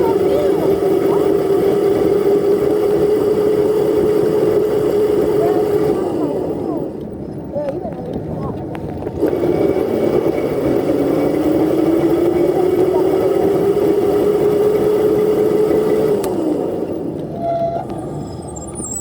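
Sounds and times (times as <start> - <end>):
dirt bike engine revving: 0.0 - 7.0, 9.2 - 19.0.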